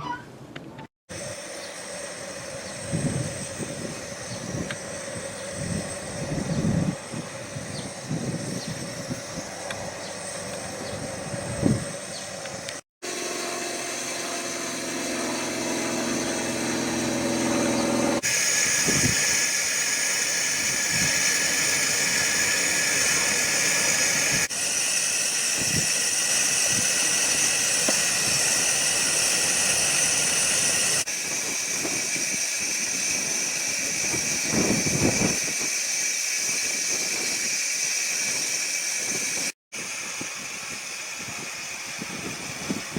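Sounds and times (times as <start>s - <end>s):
steam hissing: 1.1s - 42.9s
train running with knocks: 14.4s - 39.5s.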